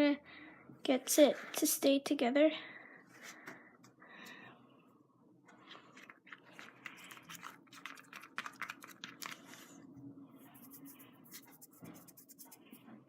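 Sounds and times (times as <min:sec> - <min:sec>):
slime being stirred and squished: 0:05.6 - 0:09.8, 0:10.4 - 0:12.8.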